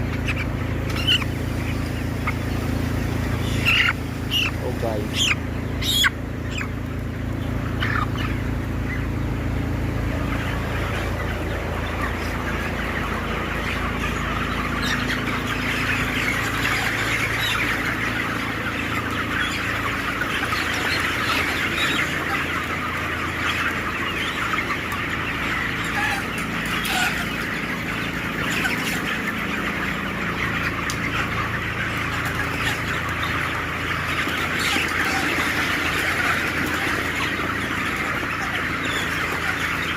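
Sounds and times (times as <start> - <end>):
chickens clucking and chirping: 0.0 - 39.9.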